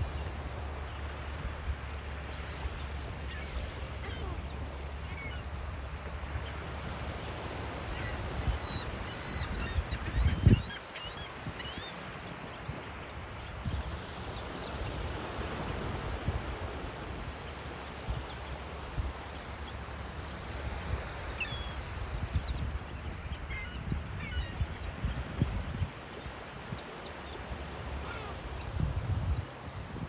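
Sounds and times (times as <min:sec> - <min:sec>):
steady surf: 0:00.0 - 0:30.0
seagulls calling: 0:02.2 - 0:12.2, 0:21.1 - 0:25.2, 0:26.6 - 0:28.8.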